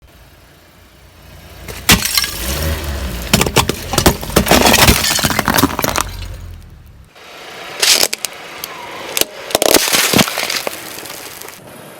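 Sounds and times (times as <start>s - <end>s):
low vehicle rumble: 0.0s - 9.6s
tyre crushing brittle objects: 1.7s - 6.6s, 7.8s - 8.3s, 9.2s - 11.6s
sharp crack: 1.7s - 6.7s, 7.8s - 11.6s.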